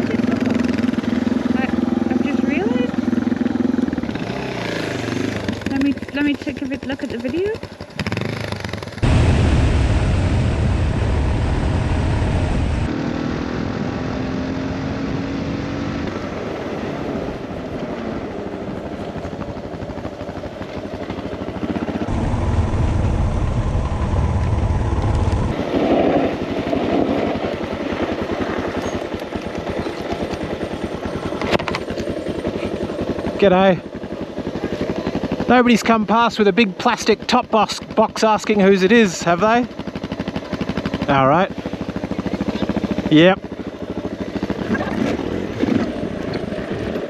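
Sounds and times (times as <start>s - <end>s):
motorcycle engine rumble: 0.0s - 39.0s
wind noise: 9.0s - 19.9s, 21.9s - 32.0s.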